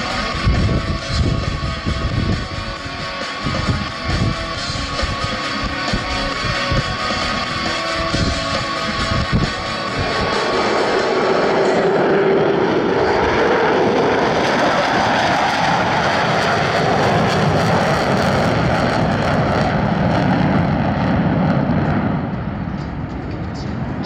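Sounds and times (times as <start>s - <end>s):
jet engine roar: 0.0s - 24.0s.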